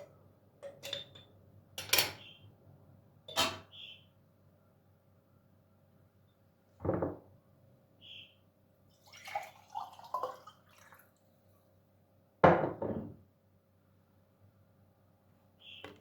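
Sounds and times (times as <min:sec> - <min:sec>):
knocks in a kitchen: 0:06.8 - 0:07.3, 0:12.4 - 0:13.2
dripping: 0:09.0 - 0:11.2.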